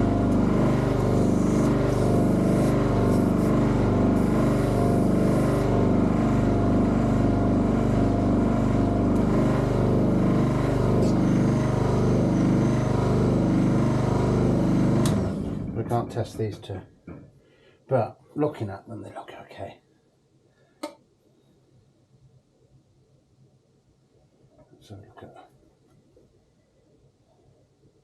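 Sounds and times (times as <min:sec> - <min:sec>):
small machine pulsing hum: 0:00.0 - 0:16.3.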